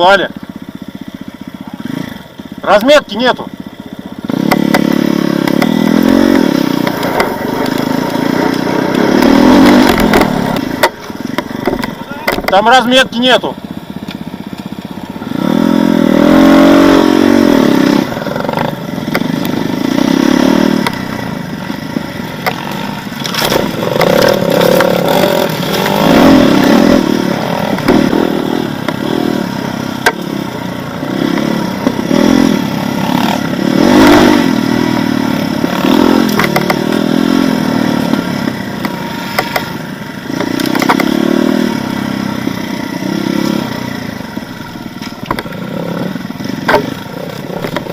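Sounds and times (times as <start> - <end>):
motorcycle engine revving: 0.0 - 47.9
sharp knocks and clatter: 4.4 - 5.8, 6.8 - 12.6, 21.9 - 26.8, 30.0 - 30.3, 36.2 - 37.0, 38.8 - 39.8, 40.4 - 41.2, 45.0 - 45.6, 46.6 - 47.9.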